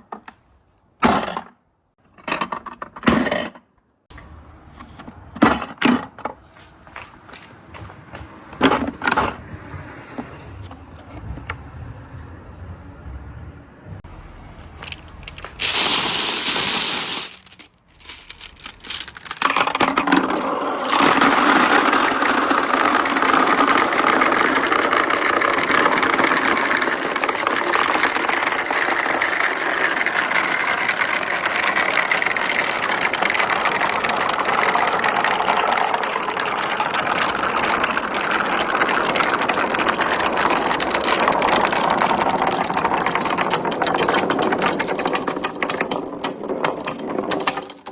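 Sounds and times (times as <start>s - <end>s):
glass marbles rolling and clattering: 14.6s - 47.9s.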